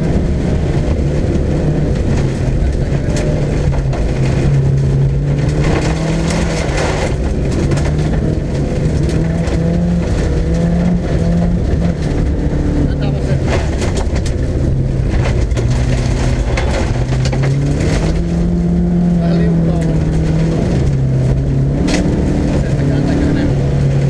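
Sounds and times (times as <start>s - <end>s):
car engine revving through gears: 0.0s - 24.0s
gravel and tyre rumble: 0.0s - 24.0s
stones clattering against car: 2.0s - 11.2s, 13.4s - 18.4s.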